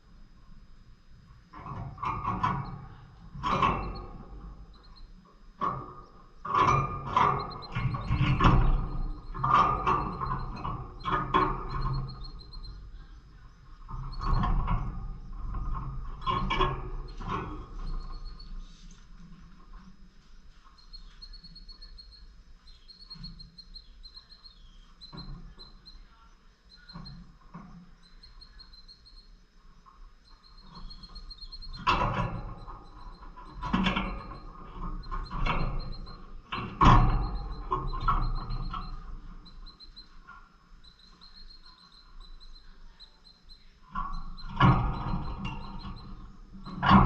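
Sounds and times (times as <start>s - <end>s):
lovebirds chirping: 7.4s - 14.4s, 20.5s - 29.4s, 30.0s - 46.9s.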